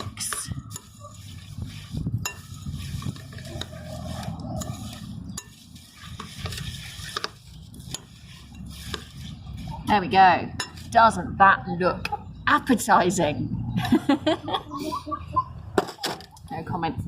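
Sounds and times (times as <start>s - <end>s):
spoon stirring bird seed: 0.0s - 11.0s
spoon clinking against bowl: 2.2s - 2.6s, 10.5s - 10.9s.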